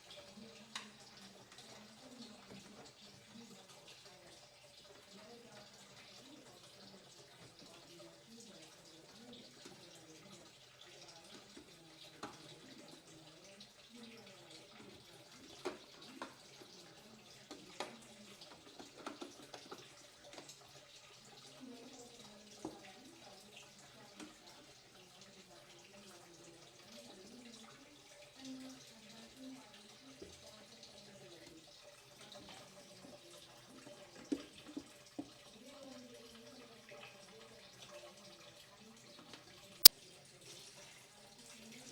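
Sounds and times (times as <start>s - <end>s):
faint tap water running: 0.0s - 41.9s.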